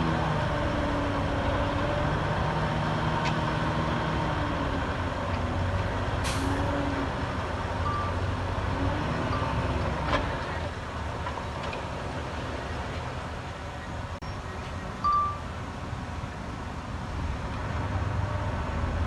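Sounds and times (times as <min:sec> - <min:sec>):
diesel machinery running: 0:00.0 - 0:19.0.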